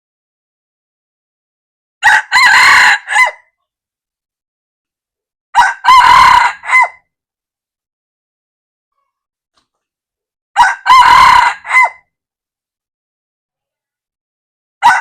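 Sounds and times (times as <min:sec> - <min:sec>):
rooster crowing: 0:02.0 - 0:03.4, 0:05.6 - 0:07.0, 0:10.6 - 0:12.0, 0:14.8 - 0:15.0.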